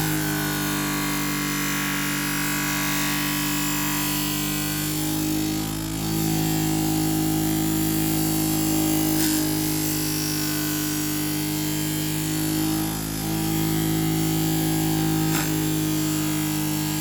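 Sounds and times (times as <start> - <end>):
sharpening machine humming: 0.0 - 17.0
knife grinding on abrasive paper: 14.6 - 17.0.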